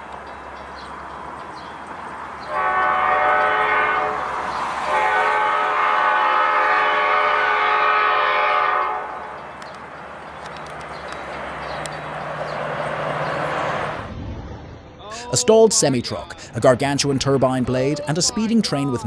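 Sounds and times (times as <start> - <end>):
train horn blasts: 2.5 - 9.5.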